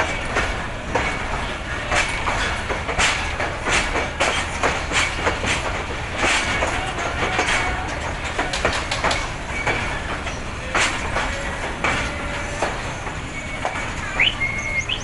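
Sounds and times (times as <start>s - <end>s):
train rumble: 0.0s - 15.0s
train wheels clicking over rail joints: 0.0s - 15.0s
faint wheel squeal: 12.1s - 15.0s.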